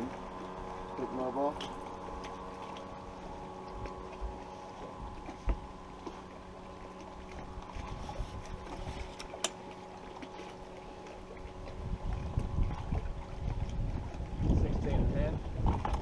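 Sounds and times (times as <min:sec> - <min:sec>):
small boat motor humming: 0:00.0 - 0:16.0
wind buffeting microphone: 0:11.2 - 0:16.0.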